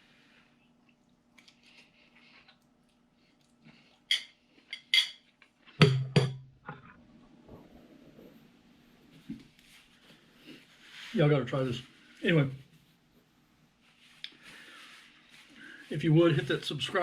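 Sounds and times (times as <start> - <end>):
cutlery clinking against dish: 4.1 - 6.4.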